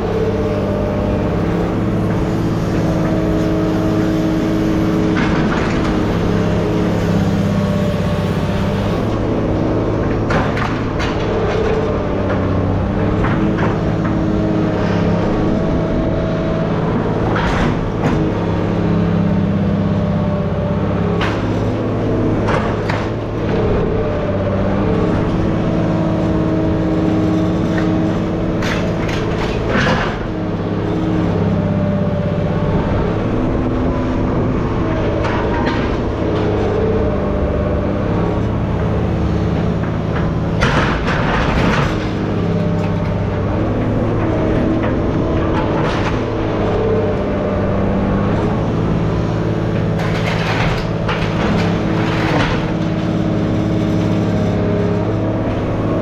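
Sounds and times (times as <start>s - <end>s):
machine engine running: 0.0s - 56.0s
metal clanks and knocks: 48.9s - 53.0s.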